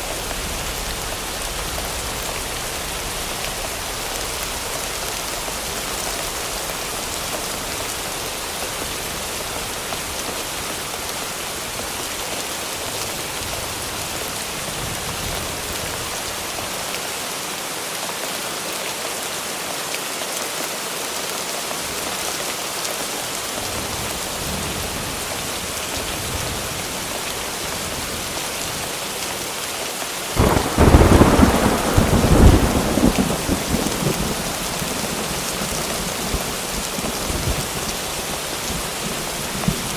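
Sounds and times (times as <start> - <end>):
rain hiss: 0.0 - 39.9
thunderclap rumbling: 30.4 - 39.9.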